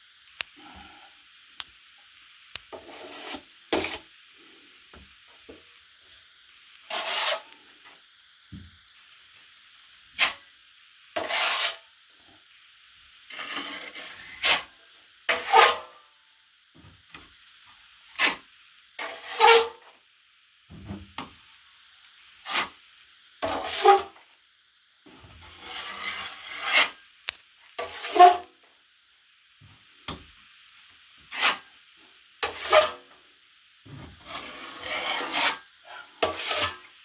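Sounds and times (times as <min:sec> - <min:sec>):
drywall knife scraping compound: 0:02.8 - 0:04.1, 0:06.9 - 0:07.6, 0:10.2 - 0:10.4, 0:11.2 - 0:11.8, 0:13.3 - 0:14.7, 0:15.3 - 0:16.0, 0:18.1 - 0:18.4, 0:19.0 - 0:19.8, 0:22.4 - 0:22.8, 0:23.4 - 0:24.2, 0:25.4 - 0:27.0, 0:27.8 - 0:28.5, 0:31.2 - 0:31.7, 0:32.4 - 0:33.1, 0:34.2 - 0:37.0.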